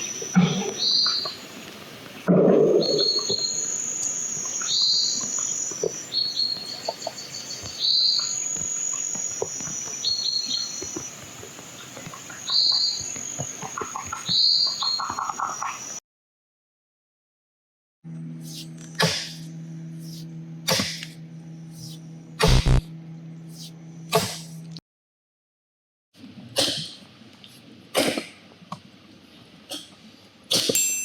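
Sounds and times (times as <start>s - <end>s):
bird calling: 2.7s - 16.0s
insects trilling: 2.7s - 16.0s.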